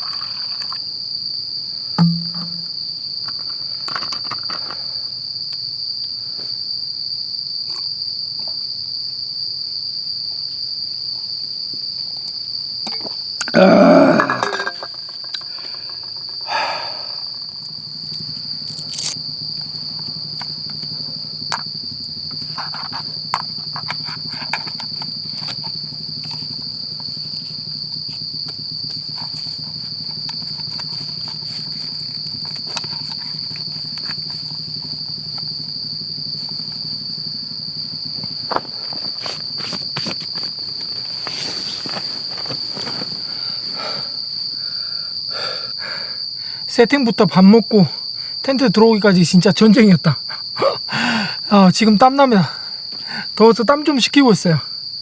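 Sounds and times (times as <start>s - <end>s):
insects trilling: 0.0s - 55.0s
handling clicks and rustles: 18.1s - 43.3s.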